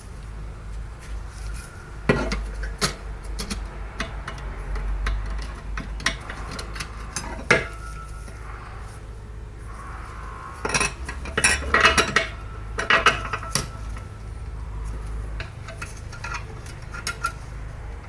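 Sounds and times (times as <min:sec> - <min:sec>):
metal tools clinking: 0:02.1 - 0:08.4, 0:10.6 - 0:14.3, 0:14.9 - 0:17.6.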